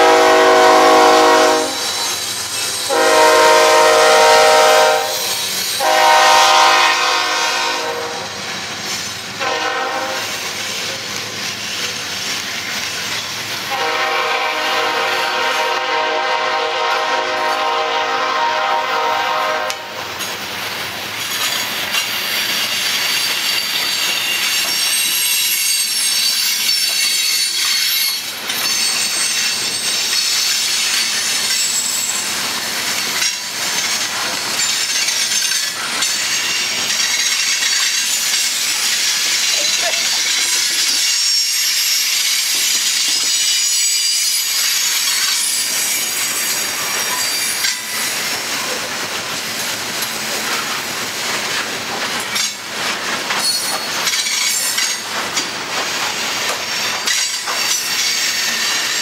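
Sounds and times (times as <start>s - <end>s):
locomotive horn chord: 0.0s - 1.9s, 2.9s - 8.3s, 9.4s - 10.2s, 13.7s - 20.0s
train wheels on rails: 0.0s - 59.0s.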